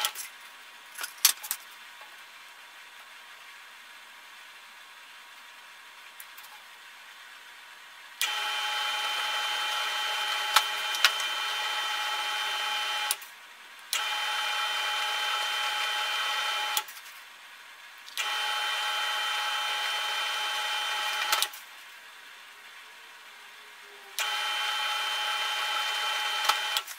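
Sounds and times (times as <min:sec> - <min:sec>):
drill press whining: 0:08.2 - 0:13.2, 0:13.9 - 0:16.9, 0:18.1 - 0:21.6, 0:24.2 - 0:26.9.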